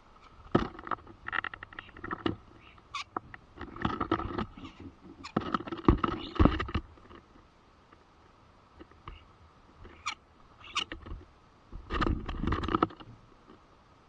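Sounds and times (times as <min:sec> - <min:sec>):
birds scratching and pecking: 0:00.0 - 0:13.7
short thin bird calls: 0:06.1 - 0:06.4, 0:09.9 - 0:10.9.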